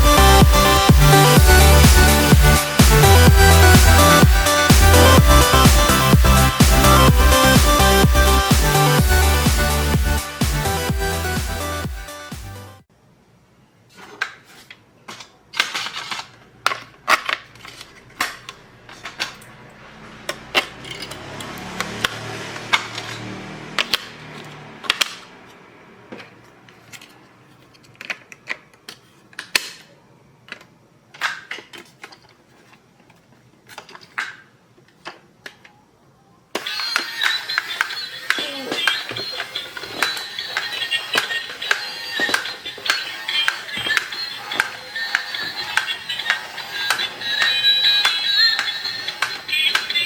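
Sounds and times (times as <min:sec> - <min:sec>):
clicks and taps of toy parts: 0:23.8 - 0:25.3.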